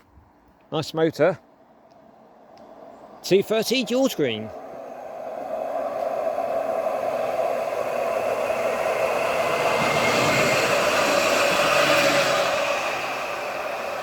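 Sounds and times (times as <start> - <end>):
tram wheels on rail: 1.6 - 14.0
humming motor: 4.5 - 14.0.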